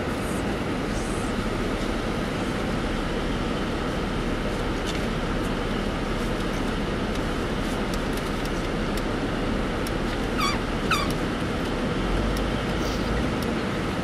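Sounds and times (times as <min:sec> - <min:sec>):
road and engine noise in car: 0:00.0 - 0:14.0
high wavering squeaks: 0:10.4 - 0:11.2.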